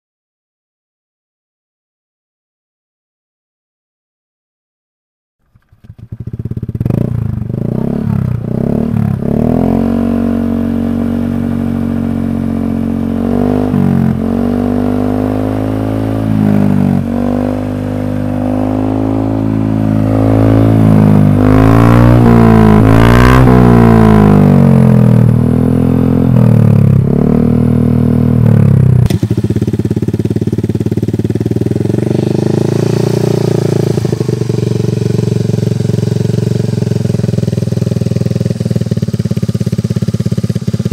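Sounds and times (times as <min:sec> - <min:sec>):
scooter engine idling: 0:05.4 - 0:09.5, 0:23.9 - 0:40.9
scooter engine revving: 0:05.4 - 0:40.9.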